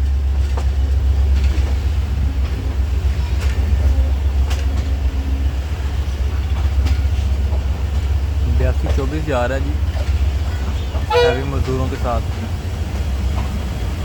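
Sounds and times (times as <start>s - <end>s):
train rumbling on rails: 0.0s - 14.0s
sharp rail clicks: 0.3s - 14.0s.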